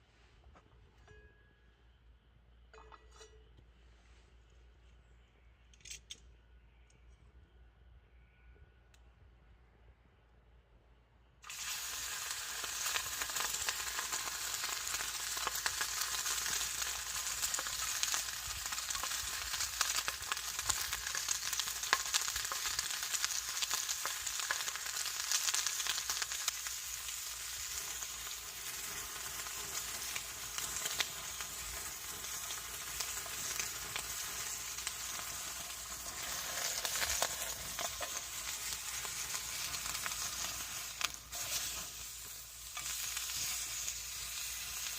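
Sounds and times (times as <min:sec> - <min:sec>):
food sizzling and popping in pan: 0:11.4 - 0:44.9.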